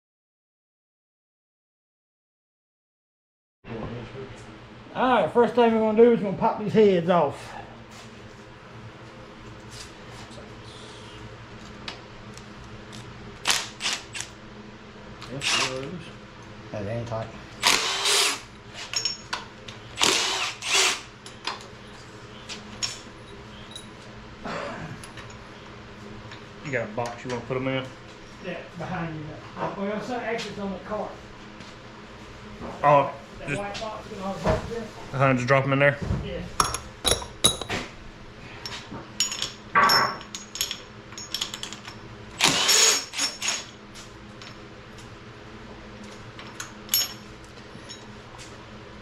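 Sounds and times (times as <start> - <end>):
power drill spinning: 15.4 - 15.9, 17.6 - 18.5, 20.0 - 21.1, 42.4 - 43.7
metal tools clinking: 18.8 - 19.4, 36.6 - 37.8, 39.2 - 42.0, 46.9 - 47.2.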